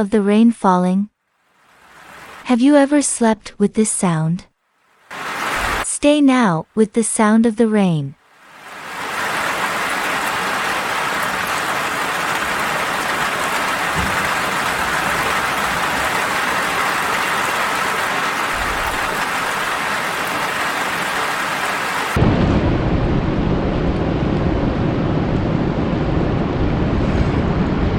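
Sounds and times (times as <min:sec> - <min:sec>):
steady rain hiss: 0:01.2 - 0:02.5, 0:04.6 - 0:06.3, 0:08.2 - 0:22.2
deep rushing noise: 0:09.0 - 0:27.9.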